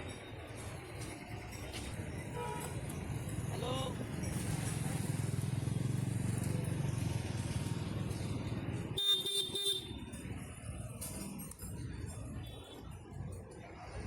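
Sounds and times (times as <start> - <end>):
motorcycle engine idling: 2.3 - 10.6.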